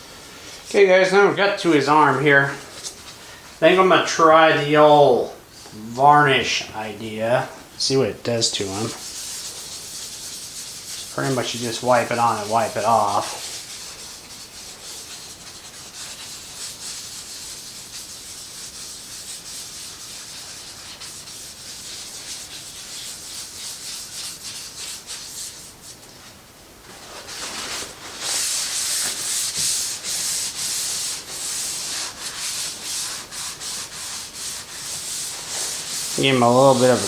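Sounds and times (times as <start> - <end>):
rag wiping strokes: 0.6 - 37.0.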